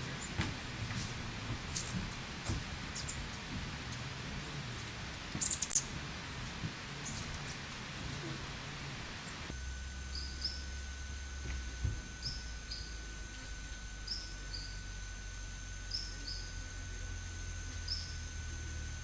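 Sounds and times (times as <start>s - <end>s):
bird chirping: 5.4s - 5.9s, 10.1s - 10.7s, 12.2s - 13.0s, 14.0s - 14.8s, 15.9s - 16.6s, 17.8s - 18.2s.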